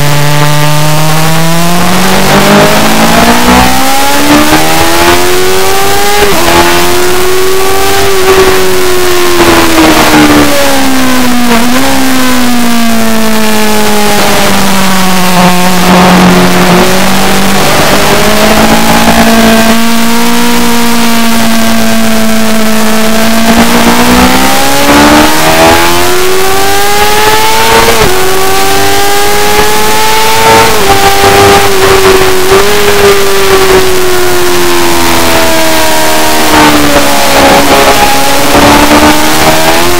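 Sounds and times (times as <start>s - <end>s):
motorcycle engine running hard: 0.0s - 39.9s.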